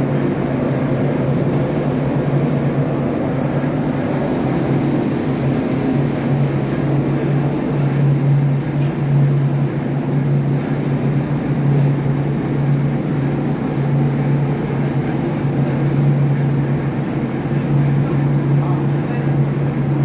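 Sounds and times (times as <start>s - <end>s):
engine-room machinery humming: 0.0s - 20.0s.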